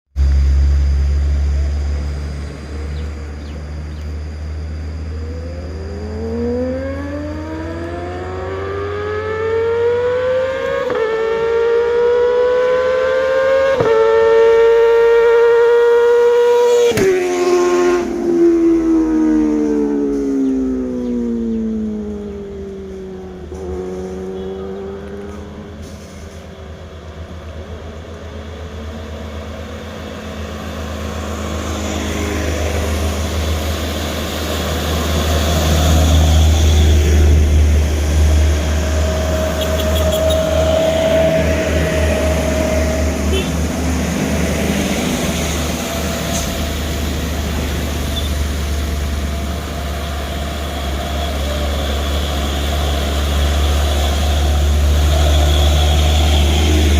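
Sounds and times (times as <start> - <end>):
heavy trucks deep engine rumble: 18.0 - 56.9.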